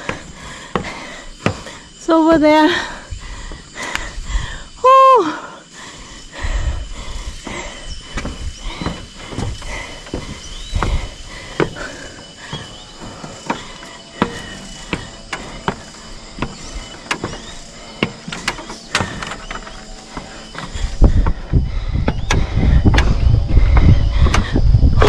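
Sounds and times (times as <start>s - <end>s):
footsteps on wooden planks: 0.0s - 4.1s, 6.0s - 24.6s
high-pitched hum: 0.0s - 25.0s
bridge squeaks: 11.8s - 21.0s.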